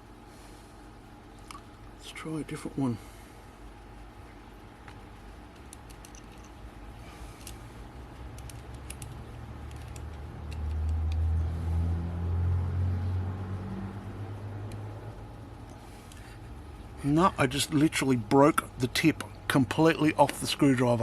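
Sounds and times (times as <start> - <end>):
screwdrivers clicking and clinking: 5.6 - 6.6.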